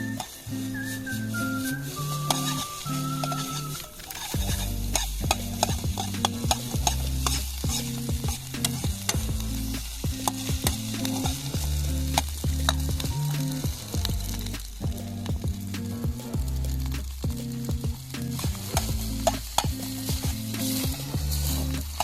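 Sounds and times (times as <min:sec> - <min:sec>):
background music: 0:00.0 - 0:22.0
food sizzling: 0:00.0 - 0:22.0
spatula scraping metal pan: 0:02.1 - 0:13.7, 0:18.3 - 0:22.0.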